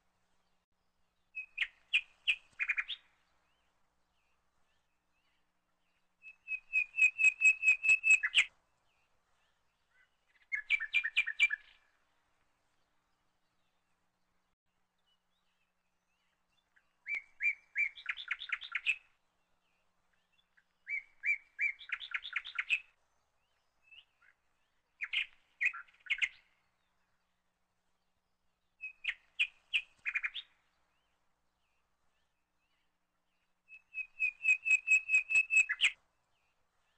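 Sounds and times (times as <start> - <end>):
songbird singing trills: 1.2 - 12.0, 15.0 - 36.9.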